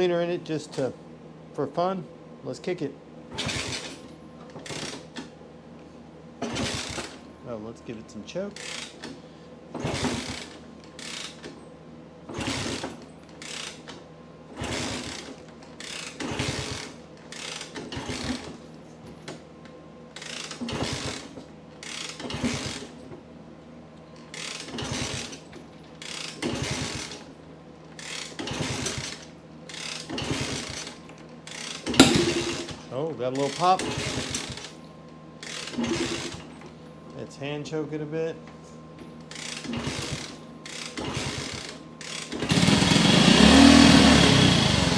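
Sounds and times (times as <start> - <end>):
motorcycle kick-start ratcheting whir: 3.3 - 5.3, 6.4 - 7.3, 8.6 - 9.2, 9.8 - 11.6, 12.3 - 14.0, 14.6 - 18.6, 20.2 - 23.0, 24.2 - 27.3, 28.0 - 34.8, 35.4 - 36.7, 39.2 - 44.9.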